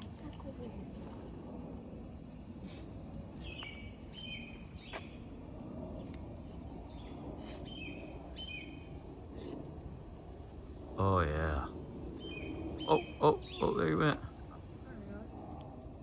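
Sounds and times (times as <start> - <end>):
low outdoor background hum: 0.0 - 16.0
bird chirping: 3.4 - 5.2, 6.2 - 8.9, 12.2 - 14.3.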